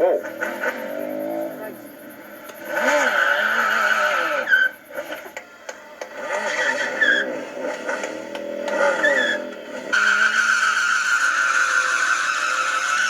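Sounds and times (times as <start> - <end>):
high steady screech: 0.0 - 5.4, 6.0 - 13.0
motorcycle engine revving: 0.0 - 13.0
tyre squeal: 2.7 - 5.3, 6.2 - 13.0.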